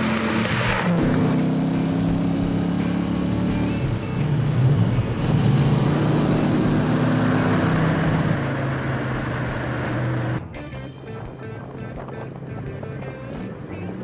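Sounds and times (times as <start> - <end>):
race car engine running: 0.0 - 10.5.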